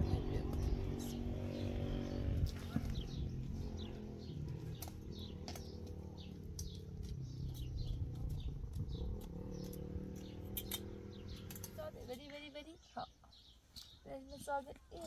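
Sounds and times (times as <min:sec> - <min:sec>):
low rumble: 0:00.0 - 0:11.5
small birds chirping: 0:00.0 - 0:15.0
sharp clicks: 0:04.7 - 0:11.8.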